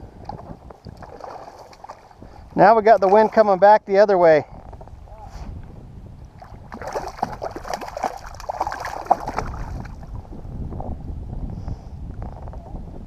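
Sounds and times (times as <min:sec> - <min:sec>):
wind rumble on microphone: 0:00.0 - 0:13.0
water splashing against a kayak: 0:00.2 - 0:03.5, 0:06.3 - 0:10.1.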